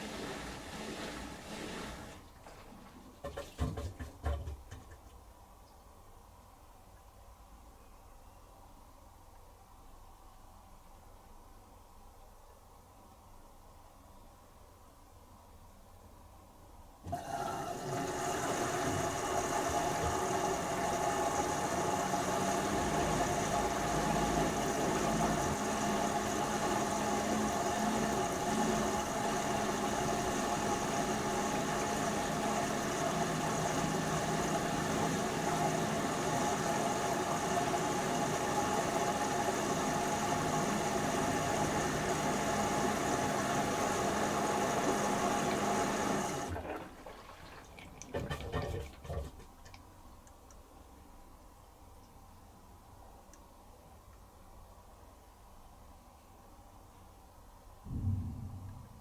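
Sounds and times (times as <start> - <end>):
washing machine humming and whining: 0.0 - 5.0, 17.0 - 49.7.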